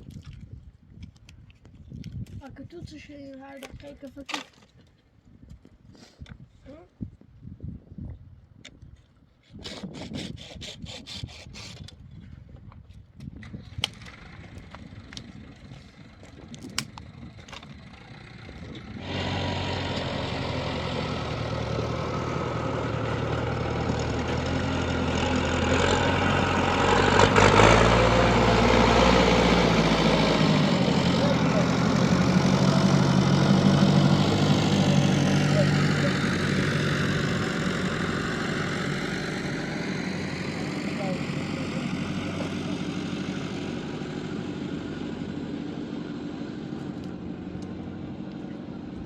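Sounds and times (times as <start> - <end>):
engine running: 13.5 - 49.0.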